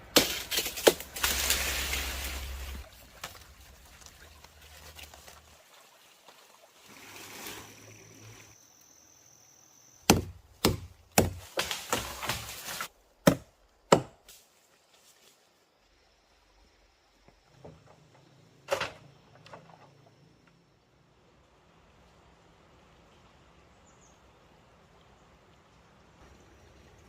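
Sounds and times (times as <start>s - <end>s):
blade chopping wood: 0.1s - 1.6s, 10.1s - 14.3s.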